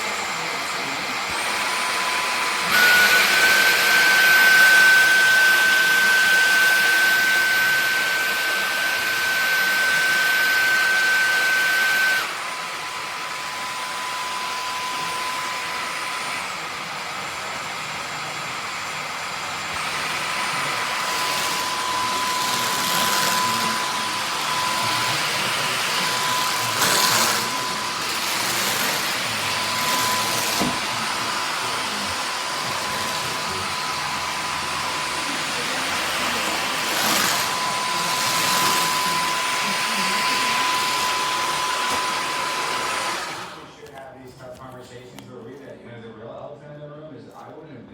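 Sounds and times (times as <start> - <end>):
vacuum motor whine: 0.0 - 44.0
vacuum suction rush: 19.7 - 43.7.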